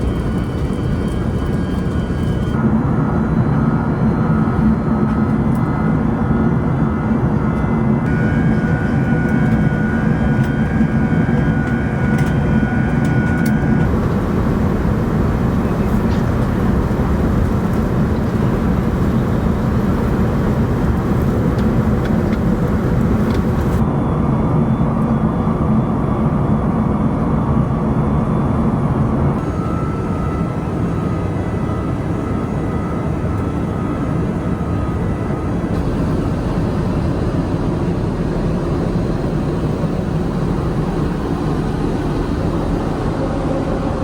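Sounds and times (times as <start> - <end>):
airliner cabin roar: 0.0 - 44.0.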